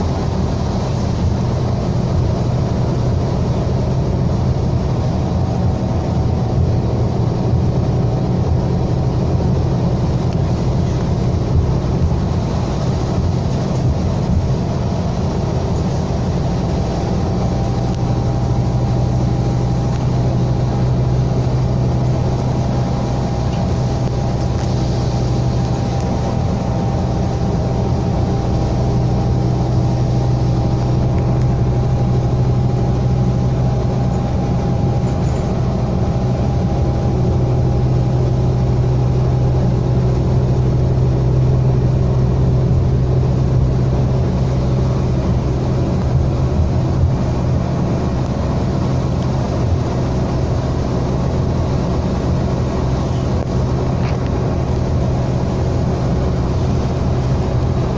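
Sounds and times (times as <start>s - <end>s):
bus diesel engine droning: 0.0s - 57.9s.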